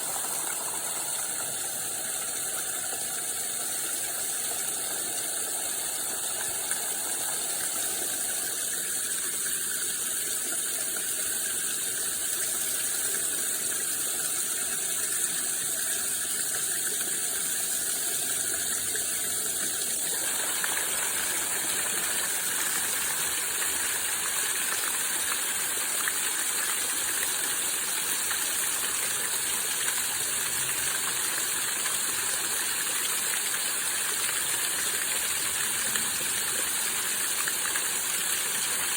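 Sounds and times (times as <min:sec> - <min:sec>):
waterfall rushing: 0:00.0 - 0:02.8, 0:04.6 - 0:08.5.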